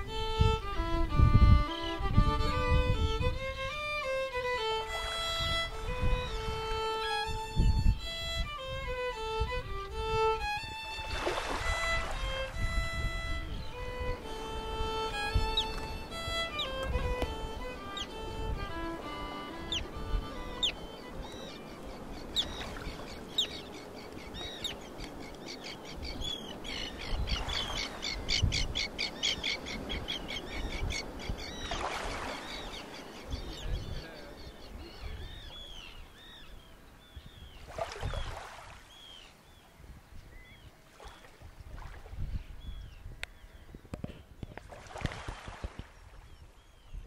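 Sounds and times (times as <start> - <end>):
wild birds calling: 14.0 - 40.7.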